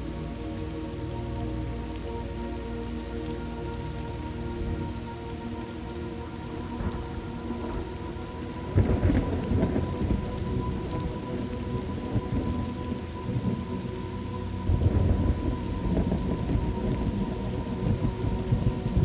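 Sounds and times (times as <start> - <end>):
steady rain: 0.0 - 19.0
thunder rumbling: 6.5 - 19.0.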